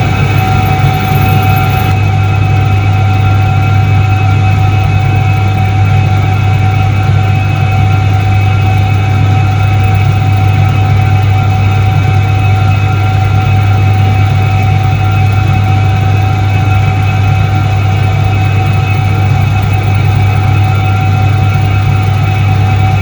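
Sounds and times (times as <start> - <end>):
washing machine motor hum: 0.0 - 2.7
high-pitched whine: 0.0 - 7.1.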